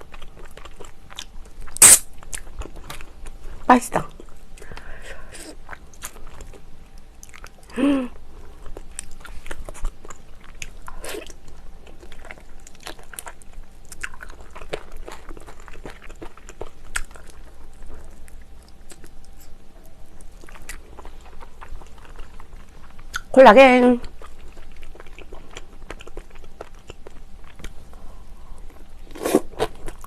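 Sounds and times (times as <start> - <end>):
close chewing with mouth smacks: 0.0 - 3.4, 7.2 - 7.7, 8.6 - 23.4, 24.0 - 30.0
person humming: 7.7 - 8.2.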